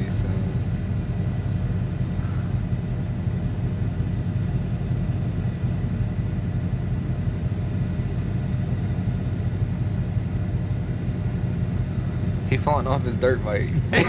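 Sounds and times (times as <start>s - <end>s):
car driving rumble: 0.0s - 14.0s.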